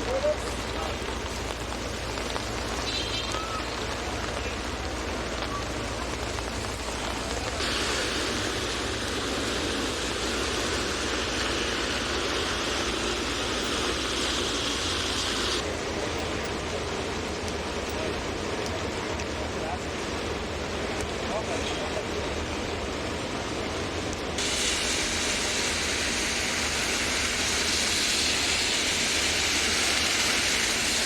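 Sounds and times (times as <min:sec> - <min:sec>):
loud hiss: 0:00.0 - 0:16.1, 0:24.4 - 0:31.0
city traffic rumble: 0:00.0 - 0:31.0
rain on an umbrella: 0:00.0 - 0:31.0.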